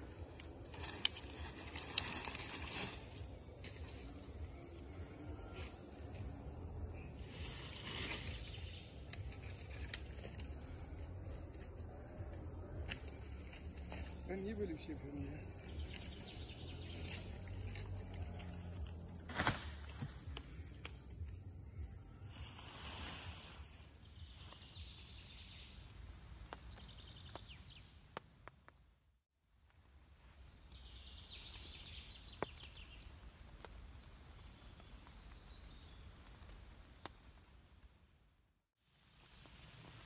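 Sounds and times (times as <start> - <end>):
high insect buzz: 0.0 - 25.8.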